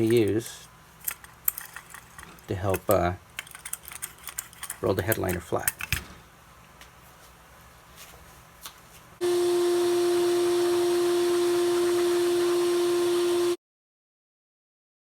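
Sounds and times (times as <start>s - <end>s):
handling clicks: 0.0s - 6.1s
loud steady hum with hiss: 6.1s - 13.6s.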